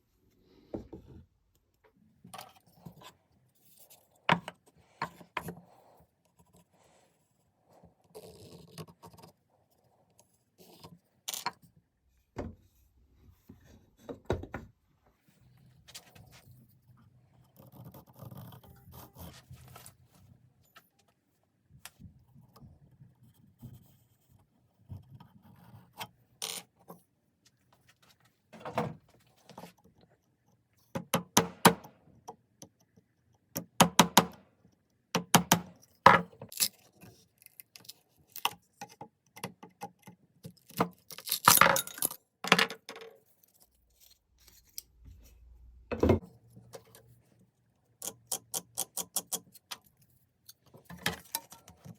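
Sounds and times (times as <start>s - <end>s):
metal tools clinking and knocking: 41.1s - 43.0s.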